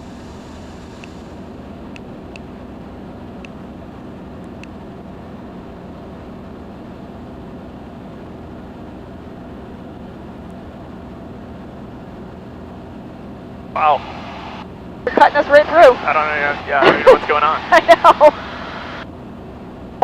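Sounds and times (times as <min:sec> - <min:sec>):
aircraft engine and propeller drone: 0:00.0 - 0:20.0.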